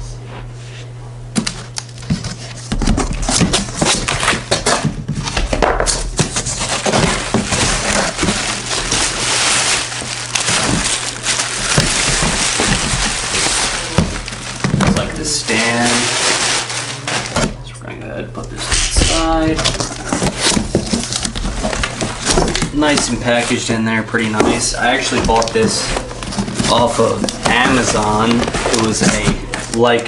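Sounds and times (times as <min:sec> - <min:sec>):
steady low hum: 0:00.0 - 0:30.0
cardboard packaging crinkling: 0:01.7 - 0:17.5, 0:18.7 - 0:30.0.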